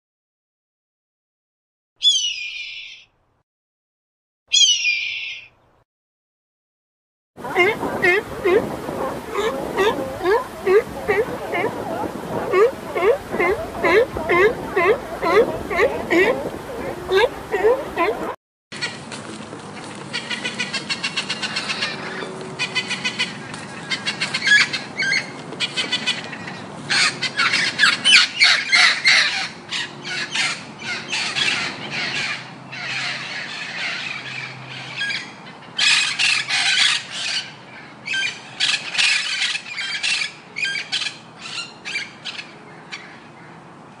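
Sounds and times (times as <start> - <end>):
birds squawking harshly: 2.0 - 3.1, 4.5 - 5.5, 7.4 - 18.3.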